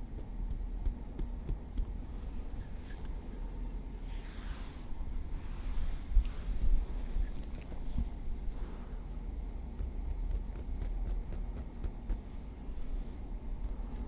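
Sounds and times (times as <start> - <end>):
steady low rumble: 0.4 - 14.0
soft scraping and brushing: 2.0 - 3.2, 3.9 - 9.6, 12.2 - 13.3.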